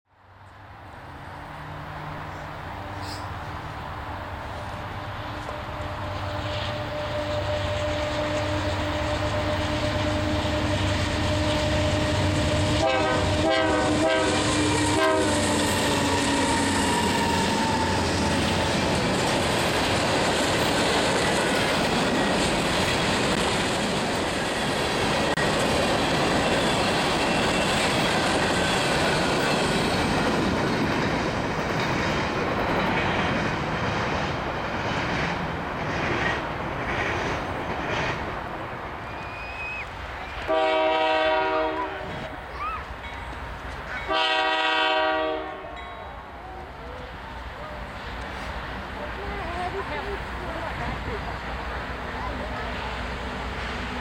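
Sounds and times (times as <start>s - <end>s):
train cars clickety-clack: 4.4s - 54.0s
train horn blasts: 4.6s - 18.6s, 40.4s - 42.2s, 44.0s - 46.0s.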